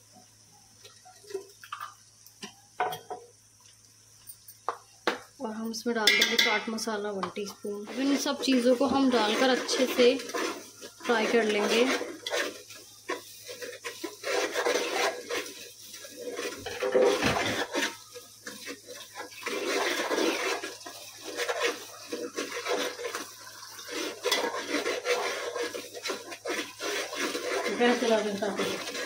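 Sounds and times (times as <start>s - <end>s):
spices sizzling in oil: 0.0s - 29.0s
spoon scraping pot: 6.0s - 29.0s.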